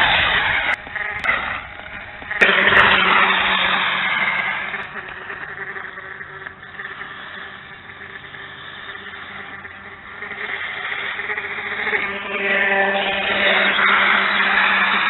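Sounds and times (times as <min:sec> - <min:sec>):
toy motorbike motor whining: 0:00.0 - 0:15.0.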